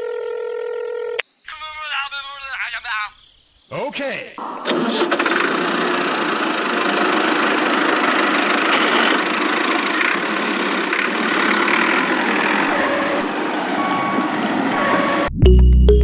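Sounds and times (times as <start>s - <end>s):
small motor buzzing: 4.9s - 13.1s.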